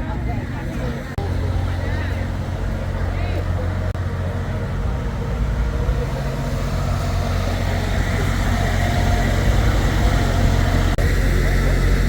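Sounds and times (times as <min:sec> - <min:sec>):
faint voices: 0:00.0 - 0:12.0
vehicle engine idling: 0:00.0 - 0:12.0.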